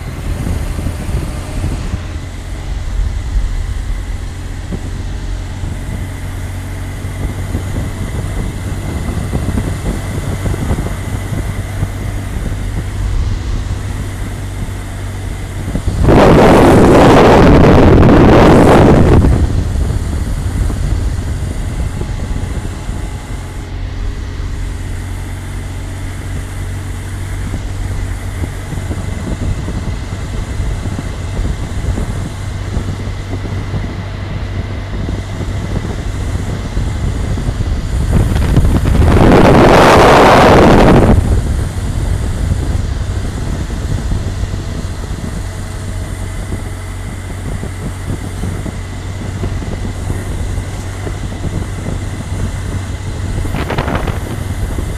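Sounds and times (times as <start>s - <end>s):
loud rushing swell: 0.0s - 8.8s, 10.4s - 19.3s
motorcycle engine drone: 0.0s - 54.9s
wind rushing over microphone: 0.0s - 54.9s.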